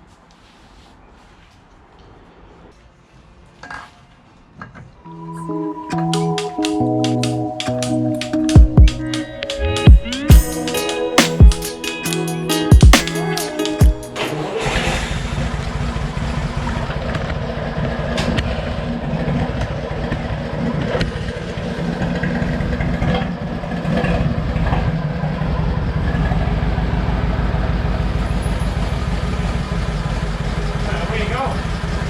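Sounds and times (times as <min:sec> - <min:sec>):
diesel engine clattering: 0:14.1 - 0:32.0.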